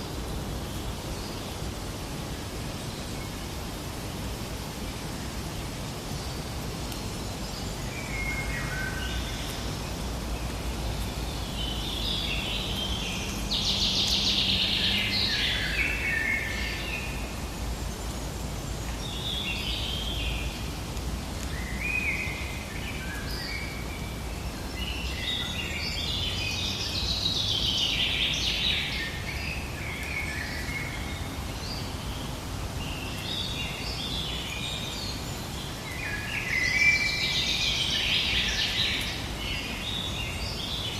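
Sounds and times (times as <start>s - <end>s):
forest birds singing: 0.0s - 40.9s.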